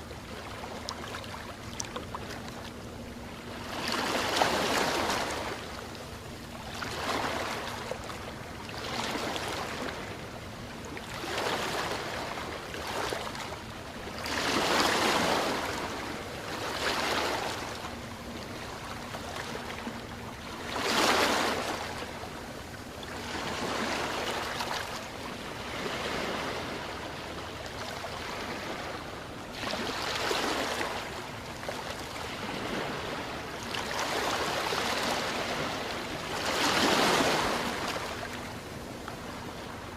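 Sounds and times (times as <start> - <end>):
faint steady hum: 0.0 - 39.9
waves washing on shore: 14.2 - 17.8, 23.2 - 39.9.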